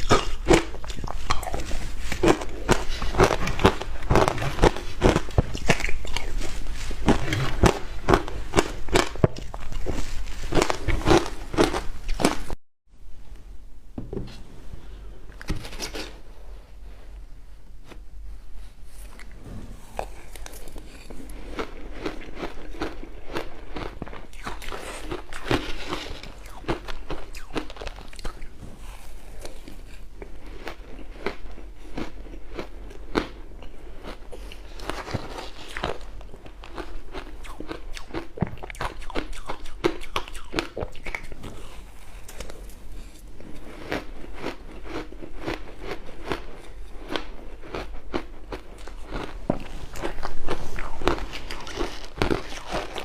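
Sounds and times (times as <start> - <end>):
chewing crushed ice: 0.0 - 12.6, 20.0 - 53.0.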